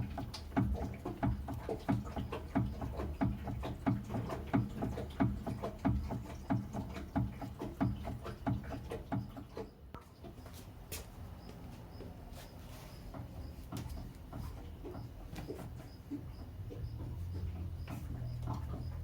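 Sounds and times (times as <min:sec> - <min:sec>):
car suspension rattling knocks: 0:00.0 - 0:09.6.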